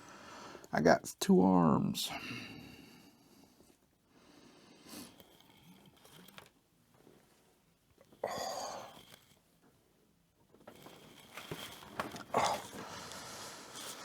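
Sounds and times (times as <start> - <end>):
plastic parts clicking and rustling: 5.0 - 7.2, 7.9 - 9.8, 10.4 - 14.0
breathy exhale: 8.2 - 9.1, 12.3 - 14.0.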